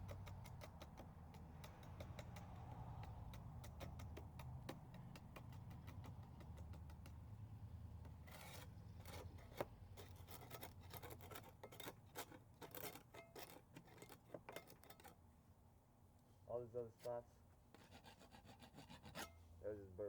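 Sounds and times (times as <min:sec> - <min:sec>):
paint scraper scraping paint: 0:00.0 - 0:07.2, 0:08.0 - 0:15.1, 0:17.8 - 0:19.4.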